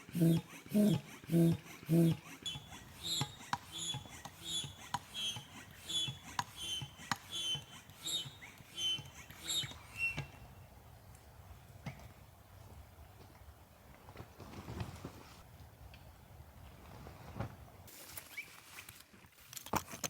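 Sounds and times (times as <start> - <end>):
hand air pump strokes: 0.0 - 10.5
pump squeak: 0.0 - 10.5.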